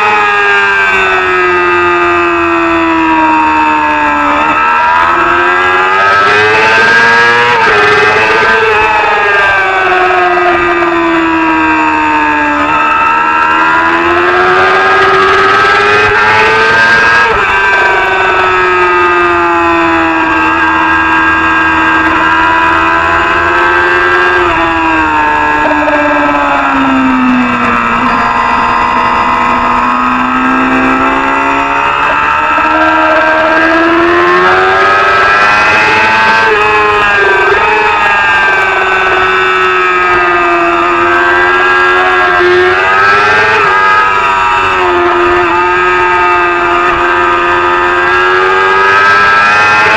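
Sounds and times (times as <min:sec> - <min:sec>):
racing motorcycle engine revving: 0:00.0 - 0:49.9.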